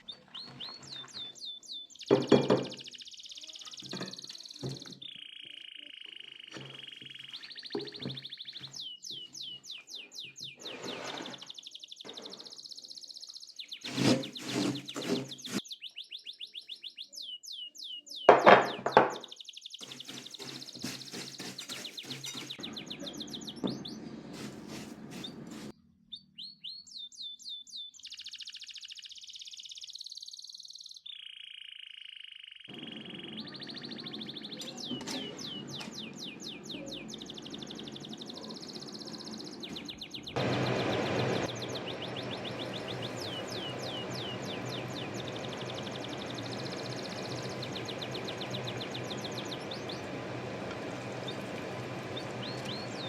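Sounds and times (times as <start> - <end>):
small bird chirping and singing: 0.0 - 53.0
knocks: 2.1 - 2.8, 18.3 - 19.2
high chirping trills: 32.7 - 53.0.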